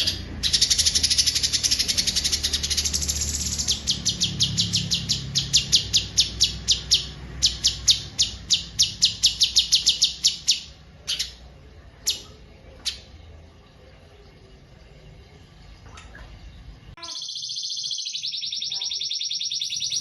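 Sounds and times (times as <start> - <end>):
songbird calling: 17.0 - 20.0.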